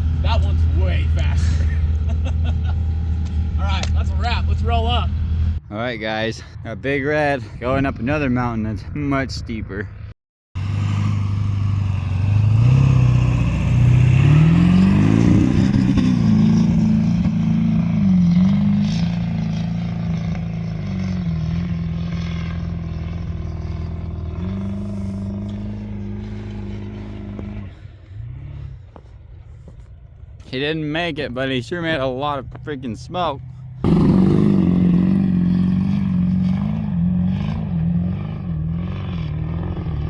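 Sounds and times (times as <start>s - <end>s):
pickup truck engine revving hard: 10.6s - 22.8s, 33.8s - 40.0s.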